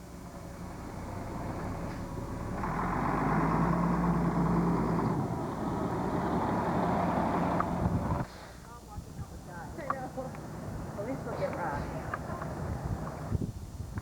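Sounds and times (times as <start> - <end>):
car running: 0.0 - 8.2.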